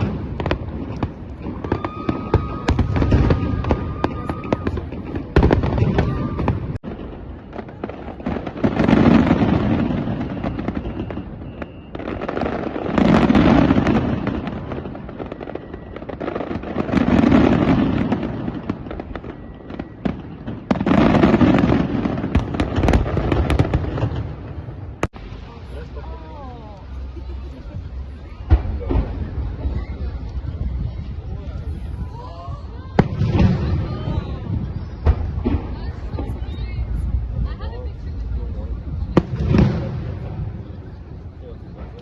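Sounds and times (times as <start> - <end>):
firework whistle: 0.0 - 24.7
firework bangs and crackles: 0.0 - 42.0
long firework bursts: 0.0 - 42.0.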